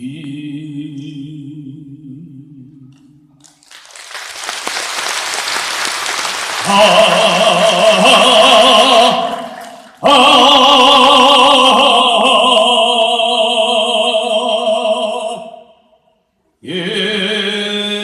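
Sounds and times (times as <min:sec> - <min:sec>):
sustained voice with wide vibrato: 0:06.6 - 0:12.5.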